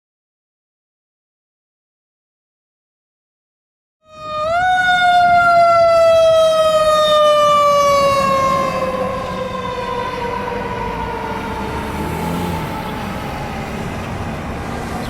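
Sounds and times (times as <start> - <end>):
fire engine siren wailing: 4.0 - 15.0.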